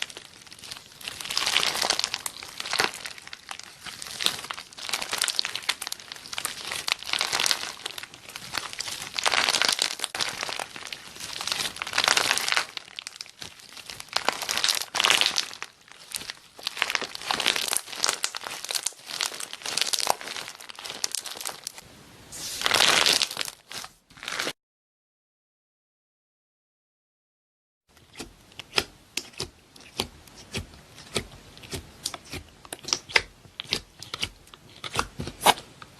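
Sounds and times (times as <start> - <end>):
slime crackling and popping: 0.0 - 21.8, 22.4 - 24.6, 31.1 - 35.6.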